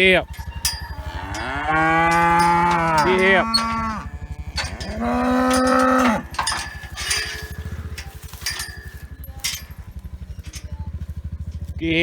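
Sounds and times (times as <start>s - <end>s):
small engine running: 0.0s - 12.0s
cow mooing: 0.1s - 9.7s.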